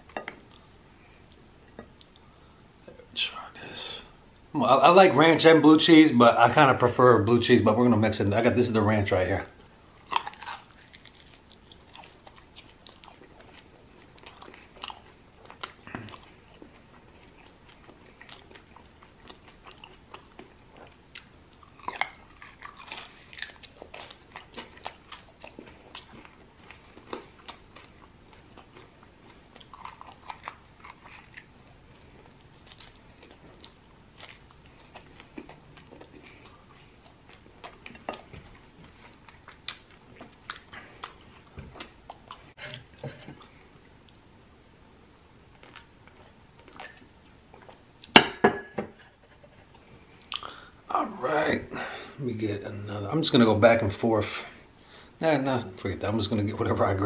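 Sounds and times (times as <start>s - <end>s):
person chewing chicken wings: 10.0s - 44.2s, 49.6s - 50.8s.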